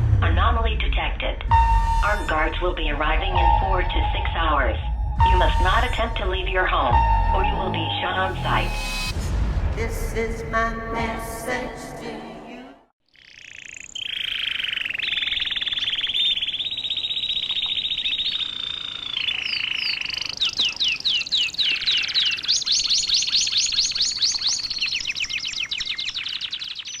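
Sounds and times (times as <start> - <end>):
canary singing trills: 13.1 - 27.0.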